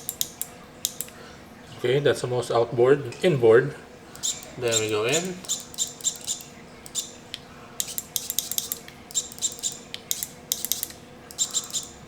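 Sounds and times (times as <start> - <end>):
shifter paddles clicking: 4.2 - 11.9.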